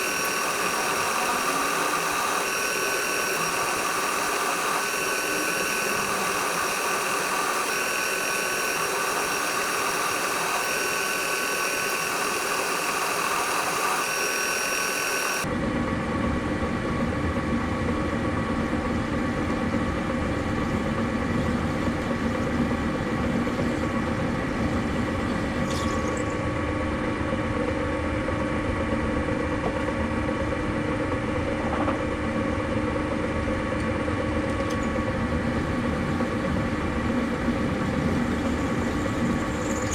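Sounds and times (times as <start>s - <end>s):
grinding machine motor running: 0.0s - 15.5s.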